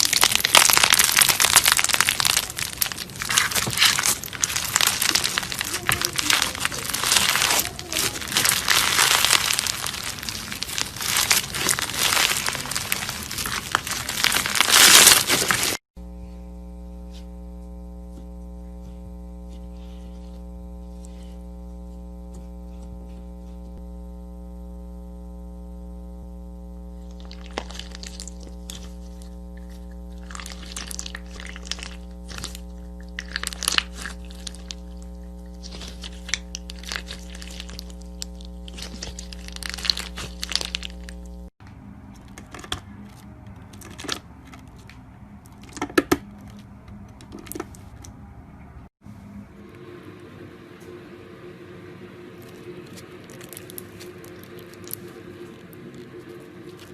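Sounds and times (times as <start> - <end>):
slime crackling and popping: 0.0 - 15.8, 27.0 - 41.5, 52.4 - 56.9
steady electrical hum: 0.0 - 56.9.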